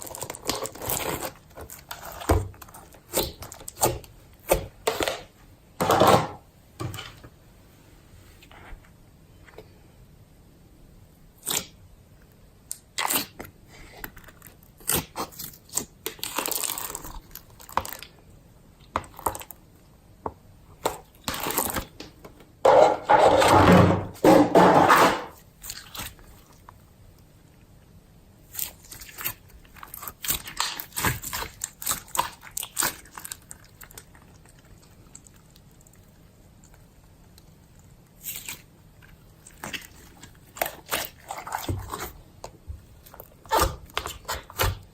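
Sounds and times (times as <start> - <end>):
hands squishing slime: 0.0 - 5.2, 12.7 - 18.2, 25.4 - 26.8, 28.4 - 44.9.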